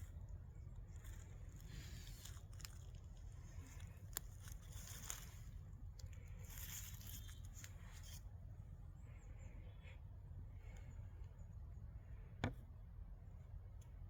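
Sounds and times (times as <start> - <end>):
crunching of dry leaf litter: 0.0 - 8.8
low steady rumble: 0.0 - 14.0.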